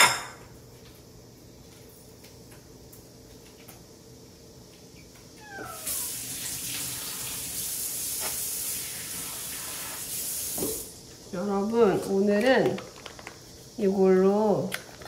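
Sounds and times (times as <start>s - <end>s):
cat meowing: 5.4s - 6.2s
kitchen tap running: 5.4s - 11.0s.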